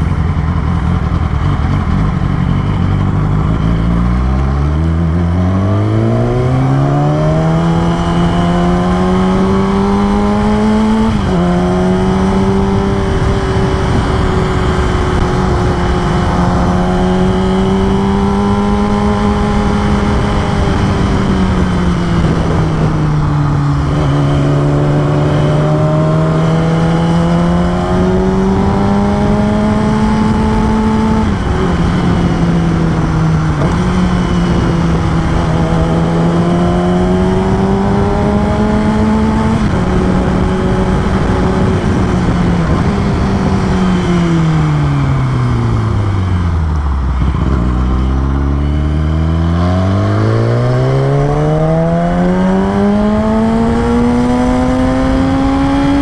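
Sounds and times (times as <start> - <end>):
motorcycle engine revving: 0.0 - 56.0
road and wind noise: 0.0 - 56.0.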